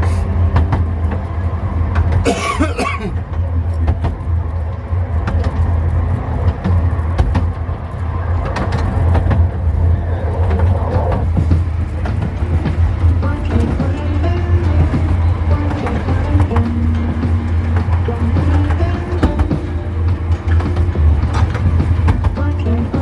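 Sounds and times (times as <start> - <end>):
miniature train running on track: 0.0 - 23.0
wheels clicking and knocking: 10.6 - 23.0.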